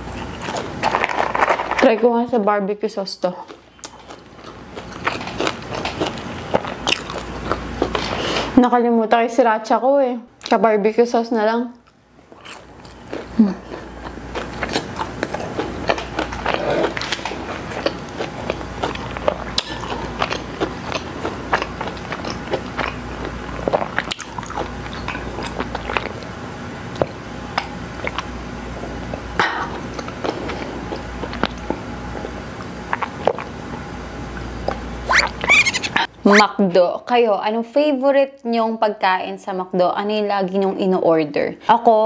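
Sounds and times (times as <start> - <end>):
person chewing food: 0.0 - 1.8, 3.4 - 8.6, 11.8 - 33.6, 34.3 - 36.1.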